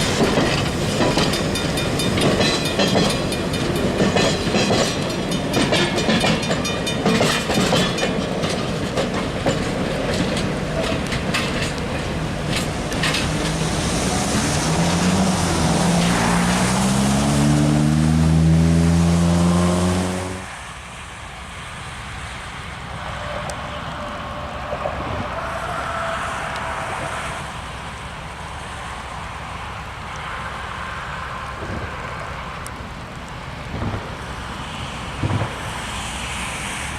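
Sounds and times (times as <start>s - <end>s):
train wheels clacking over rail joints: 0.0s - 15.6s
train engine tone rising: 12.0s - 20.6s, 23.0s - 28.0s.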